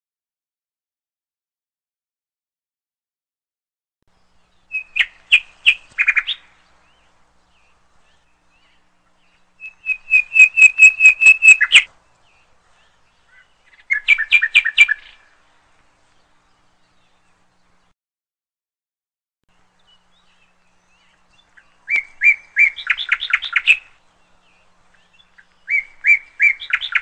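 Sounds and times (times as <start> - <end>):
bird chirping: 4.1 - 17.9, 19.5 - 27.0.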